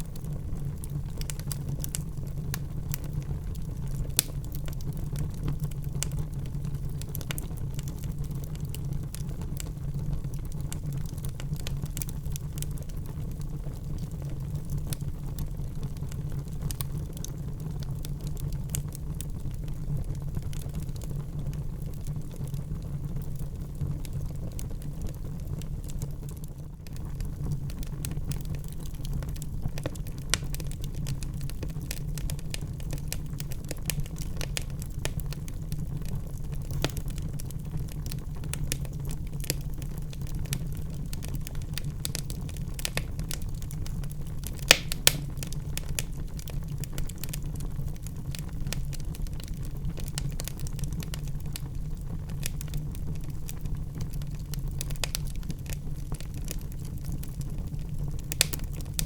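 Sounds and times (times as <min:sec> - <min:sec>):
fire rumbling with crackles: 0:00.0 - 0:59.0
loud sharp wood snaps: 0:44.7 - 0:45.4.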